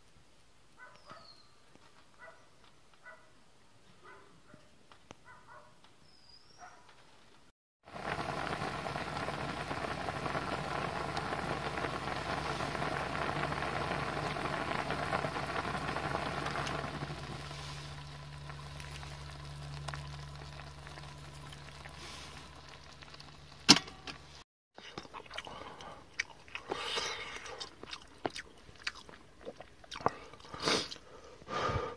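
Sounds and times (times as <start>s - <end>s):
pot boiling and bubbling: 7.8s - 31.9s
low steady hum: 7.9s - 26.6s.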